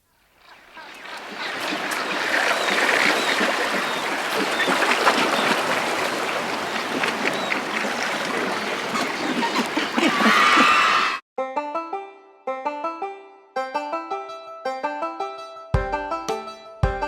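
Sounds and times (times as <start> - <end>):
stream flowing: 0.1 - 11.2.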